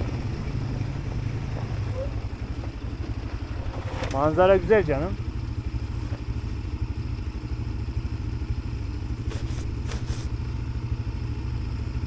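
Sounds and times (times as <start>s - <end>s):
atv engine idling: 0.0s - 12.0s
brief scratchy noises: 9.3s - 10.3s.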